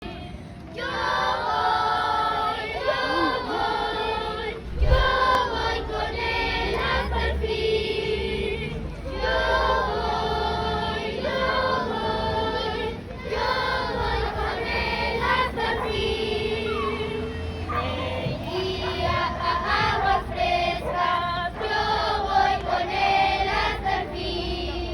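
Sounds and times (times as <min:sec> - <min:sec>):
women and children singing: 0:00.0 - 0:24.9
low thump: 0:04.7 - 0:05.4.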